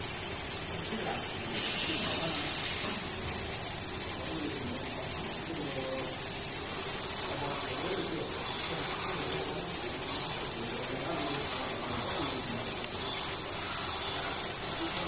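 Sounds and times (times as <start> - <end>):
factory machinery hiss: 0.0 - 15.0
faint voices: 4.0 - 15.0.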